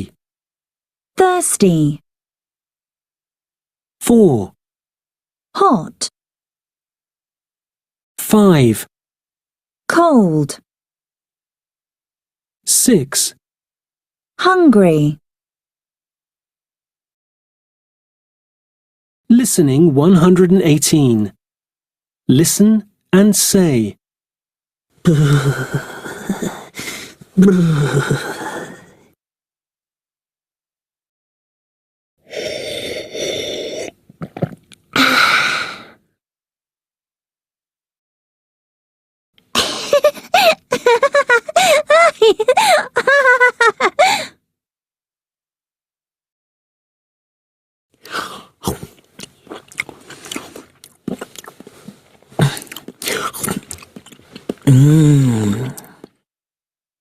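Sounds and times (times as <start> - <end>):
person humming mmm: 25.0 - 28.9, 54.6 - 56.1
person breathing vocal sounds: 25.0 - 29.1, 32.2 - 36.0, 39.6 - 44.4, 48.0 - 49.0, 51.2 - 53.7, 54.4 - 56.2
person crunching food: 48.1 - 56.1.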